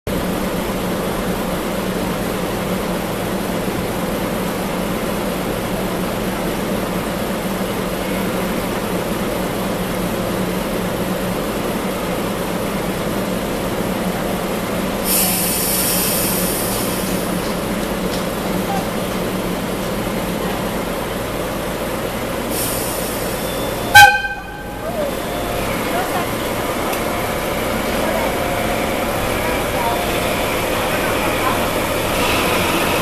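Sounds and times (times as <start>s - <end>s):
diesel locomotive engine drone: 0.1s - 33.0s
high hiss: 15.0s - 17.4s.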